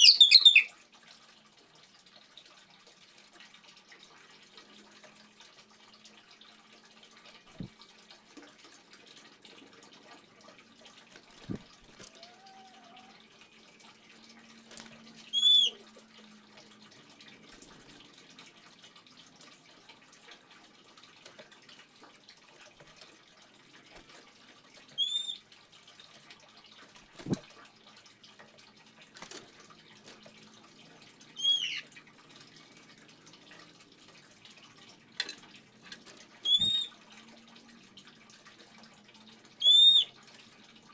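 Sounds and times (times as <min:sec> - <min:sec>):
bird sharp call: 0:00.0 - 0:00.7, 0:36.5 - 0:36.9
water trickling and dripping: 0:00.0 - 0:40.9.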